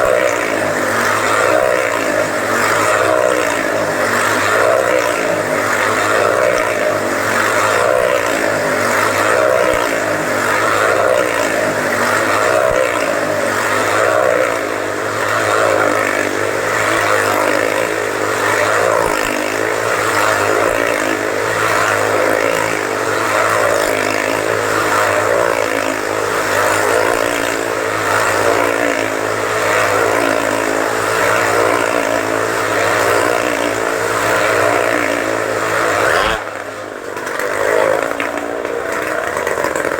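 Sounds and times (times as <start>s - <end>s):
motorcycle engines droning: 0.0s - 39.9s.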